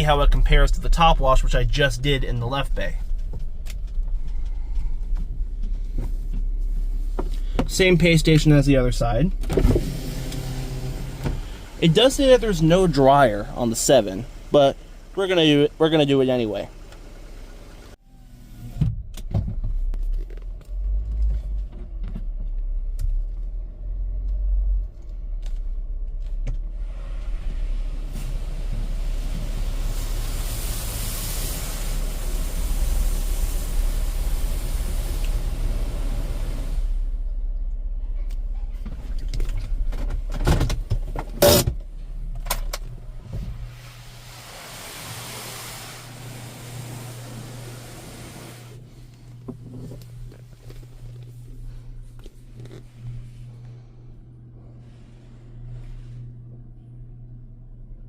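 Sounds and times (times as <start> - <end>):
steady hum: 0.0 - 18.0, 27.4 - 58.0
car rumble from inside: 0.0 - 58.0
soft hiss: 26.9 - 37.3, 41.9 - 53.9.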